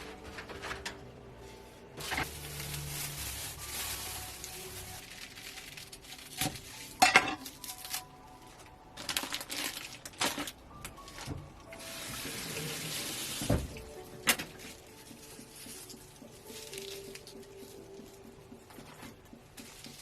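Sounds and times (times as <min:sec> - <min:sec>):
dishes and utensils clinking: 0:07.0 - 0:07.5
water running from a tap: 0:11.8 - 0:13.8.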